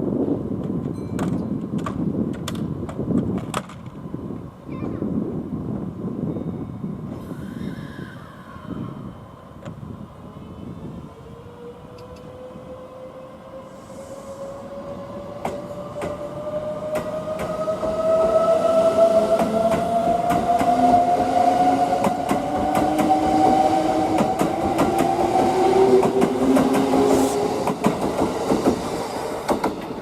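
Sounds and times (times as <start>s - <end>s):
train motors whining: 11.4s - 30.0s.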